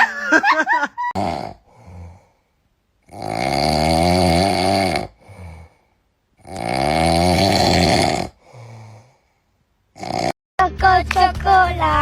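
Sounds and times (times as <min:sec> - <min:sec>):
loud snoring: 0:01.1 - 0:02.3, 0:03.0 - 0:05.8, 0:06.4 - 0:09.2, 0:10.0 - 0:10.4.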